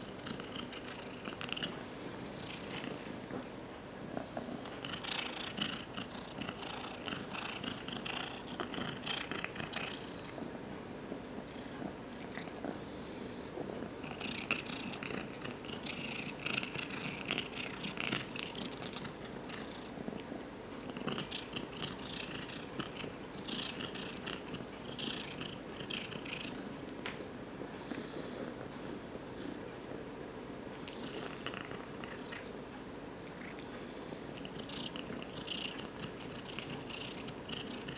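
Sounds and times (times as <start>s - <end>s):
cat purring: 0.0s - 30.0s, 30.8s - 37.9s
cat crunching a treat: 20.8s - 26.7s.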